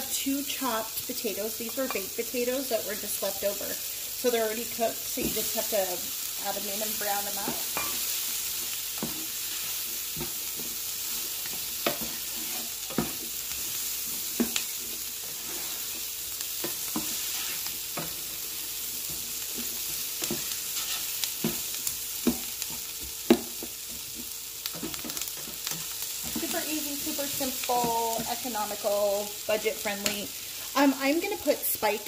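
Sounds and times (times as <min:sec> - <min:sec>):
vegetables sizzling in a skillet: 0:00.0 - 0:32.0
spatula scraping and knocking a pan: 0:06.9 - 0:18.4, 0:19.0 - 0:28.8.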